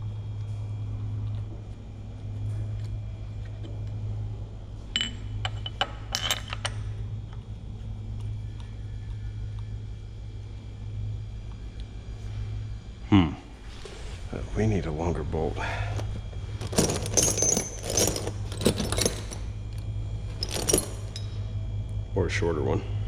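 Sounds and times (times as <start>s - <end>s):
steady low hum: 0.0s - 23.0s
metallic clinks of tools: 16.6s - 19.5s, 20.4s - 21.4s.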